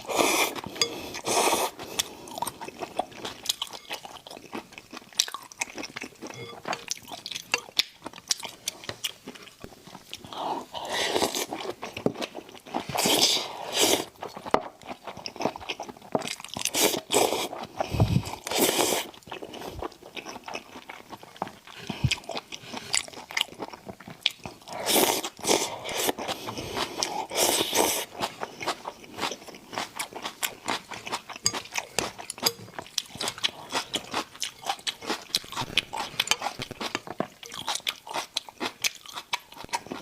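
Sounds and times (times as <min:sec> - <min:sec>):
wet chewing and crunching: 0:00.0 - 0:40.0.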